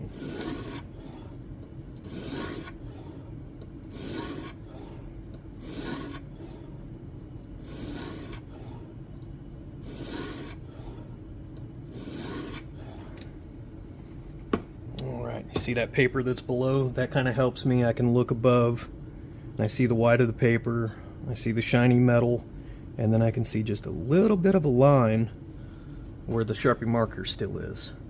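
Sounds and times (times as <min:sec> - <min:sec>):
sharpening plate scraping knife edge: 0:00.2 - 0:01.3, 0:02.0 - 0:02.8, 0:05.6 - 0:06.3, 0:12.0 - 0:12.7.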